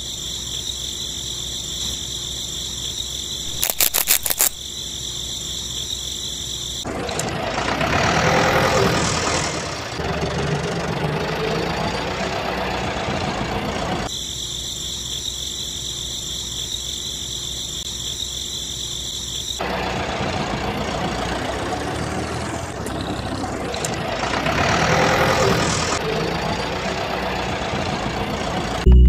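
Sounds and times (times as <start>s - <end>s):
small electric motor whining: 3.5s - 4.6s.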